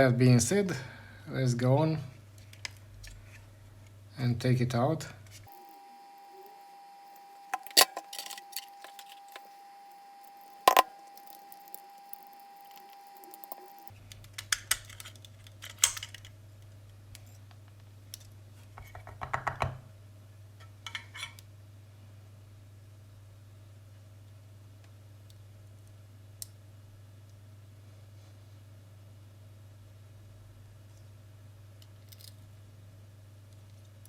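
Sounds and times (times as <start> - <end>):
faint steady tone: 5.5 - 13.9
plastic and metal parts clicking: 14.1 - 16.3.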